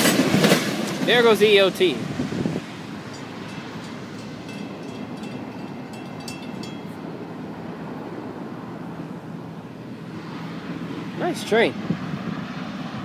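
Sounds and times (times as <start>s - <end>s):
freight train rumbling: 0.0s - 13.0s
faint thin ringing tone: 3.1s - 7.1s.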